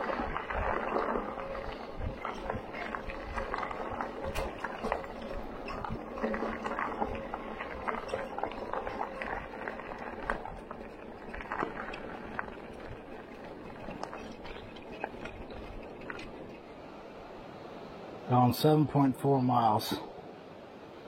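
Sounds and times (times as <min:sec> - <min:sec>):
bicycle knocks and rattles: 0:00.0 - 0:16.7
bicycle rolling on trail: 0:00.0 - 0:17.5.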